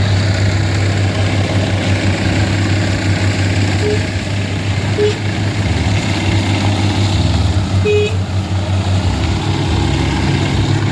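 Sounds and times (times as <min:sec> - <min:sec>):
vehicle engines in traffic: 0:00.0 - 0:10.9
short high beeps: 0:03.8 - 0:04.1.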